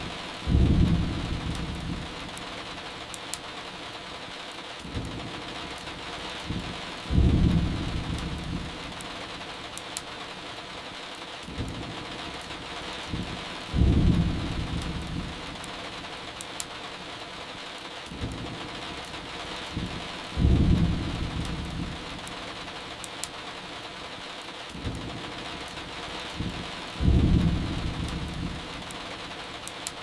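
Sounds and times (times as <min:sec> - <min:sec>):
steady rain: 0:00.0 - 0:30.0
thunder rolling: 0:00.4 - 0:02.1, 0:06.5 - 0:08.9, 0:13.1 - 0:15.5, 0:19.7 - 0:22.2, 0:26.4 - 0:28.8
firewood crackling: 0:11.4 - 0:23.8.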